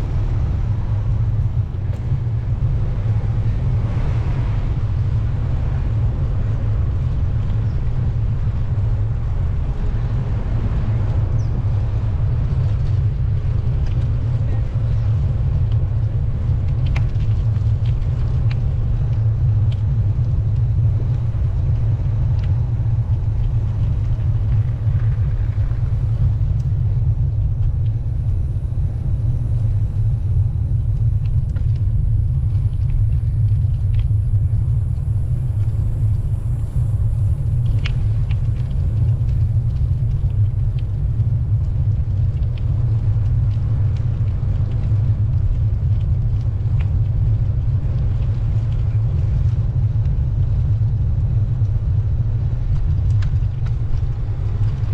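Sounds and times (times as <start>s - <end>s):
wind buffeting microphone: 0.0s - 54.9s
faint clicks: 32.5s - 34.2s.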